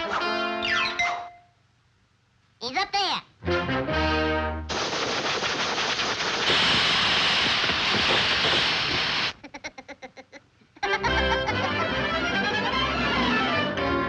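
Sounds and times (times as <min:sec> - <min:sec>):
loud hissing rush: 0:04.7 - 0:09.4.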